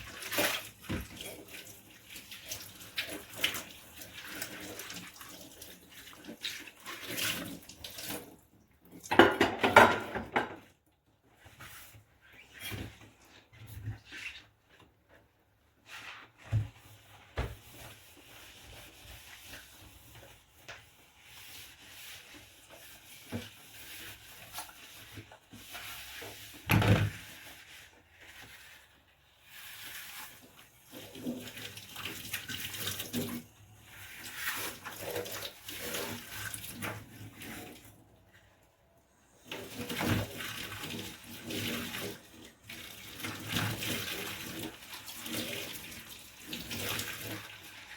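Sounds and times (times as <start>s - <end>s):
running water at sink: 0.0s - 10.6s, 16.1s - 38.6s, 39.3s - 47.9s
scrubbing dishes: 9.0s - 10.7s
dishes clinking and knocking: 9.1s - 10.7s.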